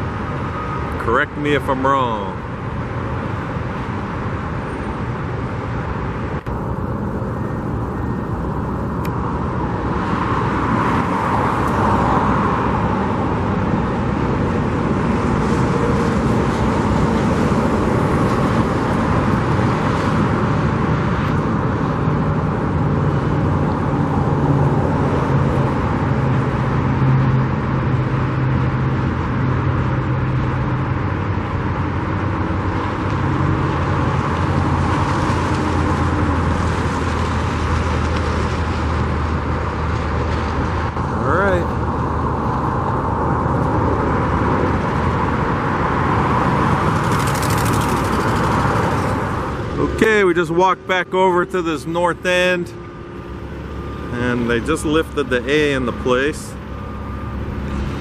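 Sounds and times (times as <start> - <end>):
low engine hum: 0.0 - 58.0
road traffic noise: 0.0 - 58.0.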